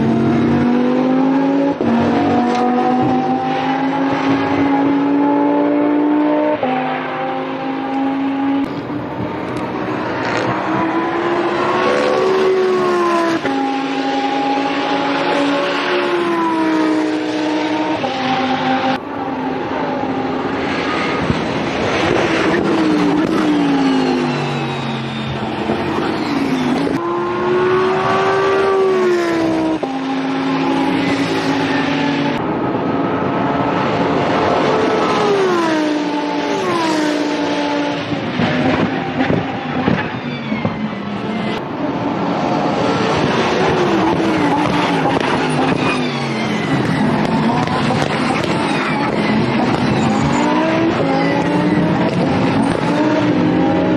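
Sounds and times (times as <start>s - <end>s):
sports car engine revving: 0.0s - 19.0s.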